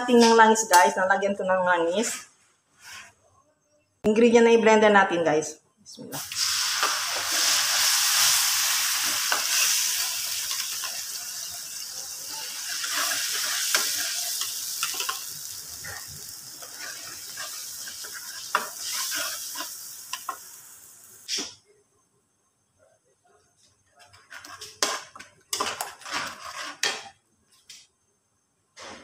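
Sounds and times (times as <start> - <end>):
spice paste sizzling in hot oil: 6.2 - 21.4
metal spatula scraping a wok: 6.4 - 20.4, 24.1 - 27.1.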